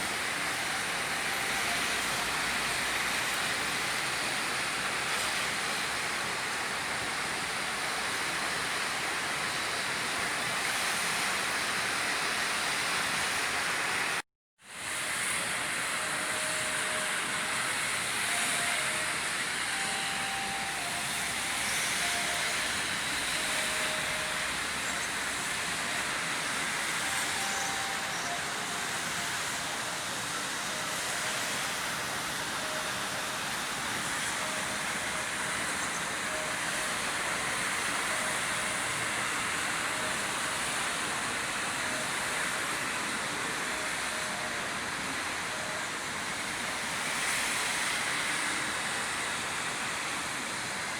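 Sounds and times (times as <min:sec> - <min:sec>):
faint steady-pitched tones: 0:00.0 - 0:04.4, 0:14.8 - 0:50.8
steady rainfall: 0:00.0 - 0:50.9.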